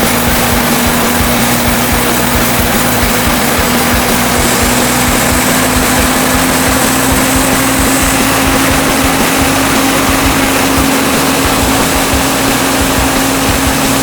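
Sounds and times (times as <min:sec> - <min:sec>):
band sawmill engine running: 0:00.0 - 0:14.0.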